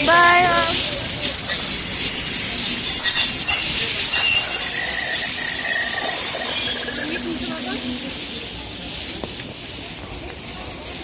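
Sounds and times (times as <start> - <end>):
train wheels squealing: 0.1 - 8.4.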